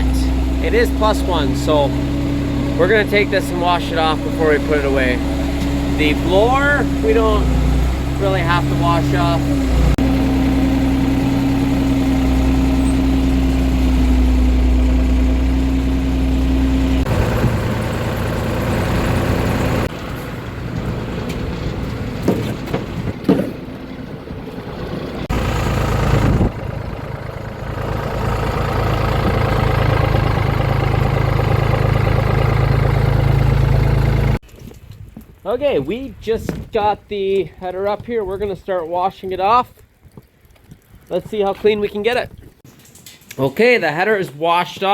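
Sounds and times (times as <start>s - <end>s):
diesel engine running: 0.0s - 34.4s.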